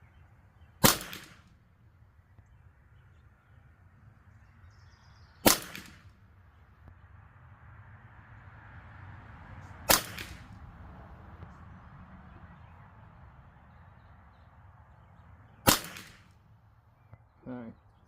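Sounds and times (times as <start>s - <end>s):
rifle shot with echo: 0.8s - 1.6s, 5.4s - 6.2s, 9.9s - 10.6s, 15.6s - 16.4s.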